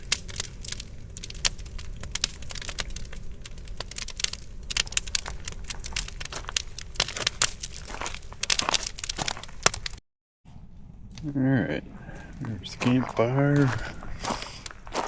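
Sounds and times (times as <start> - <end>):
campfire crackling and popping: 0.0 - 15.0
low steady rumble: 10.5 - 14.9.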